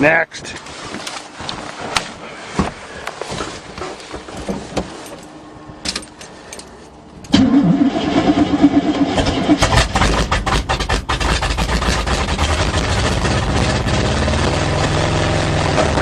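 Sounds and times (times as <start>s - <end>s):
truck engine cranking and starting: 7.2s - 16.0s.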